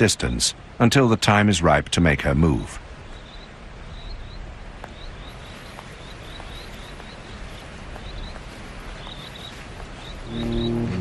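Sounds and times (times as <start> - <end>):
creek water rushing: 0.0 - 11.0
bird chirping: 3.0 - 11.0.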